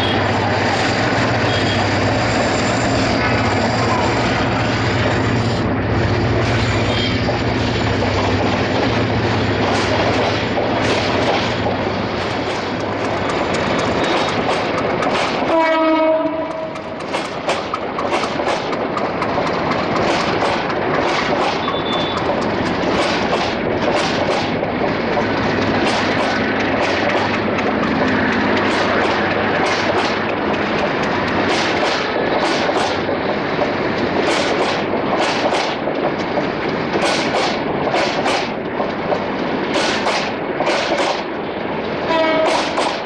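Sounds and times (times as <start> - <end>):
train rumbling along tracks: 0.0 - 43.0
train horn blast: 1.4 - 2.2, 15.5 - 16.9, 21.6 - 22.2, 42.1 - 42.8
wheels clacking over rail joints: 6.3 - 43.0.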